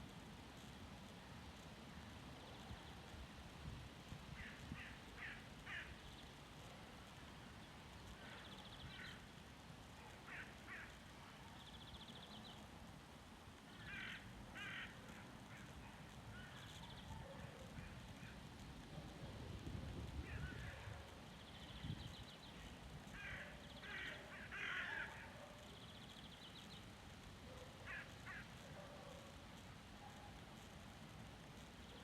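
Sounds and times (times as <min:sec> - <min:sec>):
birds calling faintly: 0:00.2 - 0:32.0
low wind rumble: 0:13.6 - 0:25.2.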